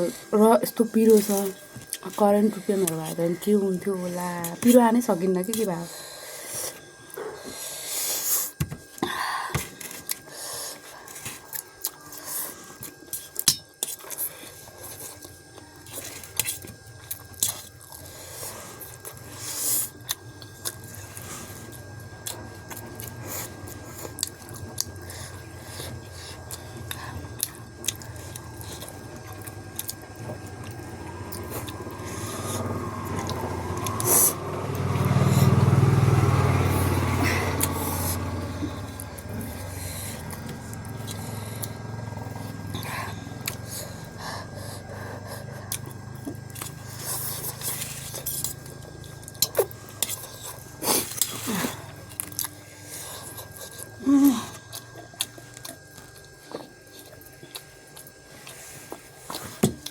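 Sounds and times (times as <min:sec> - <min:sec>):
chewing noodles: 0:09.8 - 0:59.9
road traffic rumble: 0:30.3 - 0:49.0.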